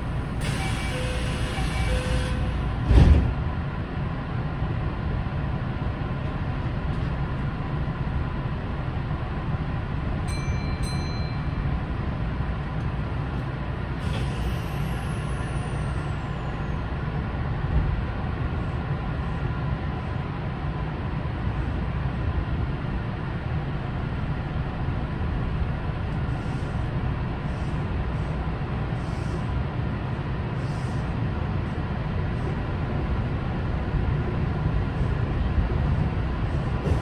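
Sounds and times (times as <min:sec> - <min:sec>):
electric train low rumble: 0:00.0 - 0:37.0.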